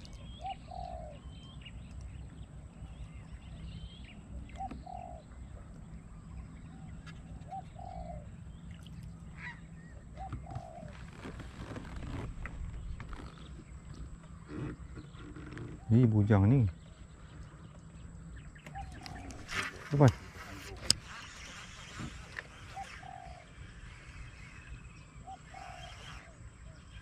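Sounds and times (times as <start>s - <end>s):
steady low rumble: 11.0s - 15.3s
higher bird chirps: 12.6s - 27.0s.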